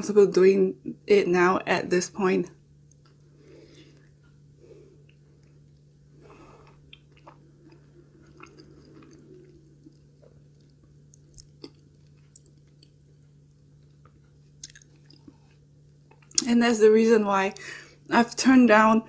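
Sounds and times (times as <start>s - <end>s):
steady low hum: 0.0s - 19.0s
person chewing food: 2.8s - 16.4s
small mouth clicks: 6.3s - 12.9s, 14.0s - 15.4s.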